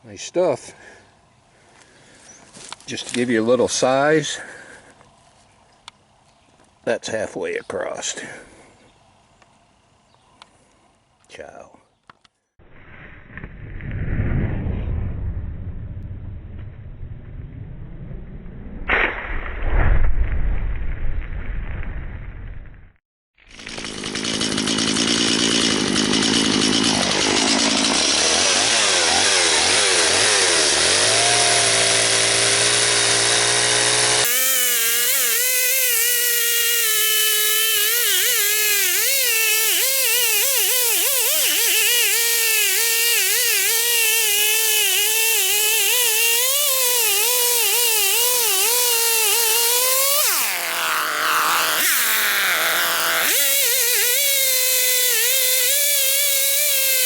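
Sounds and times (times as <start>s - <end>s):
chainsaw running: 23.4s - 57.0s.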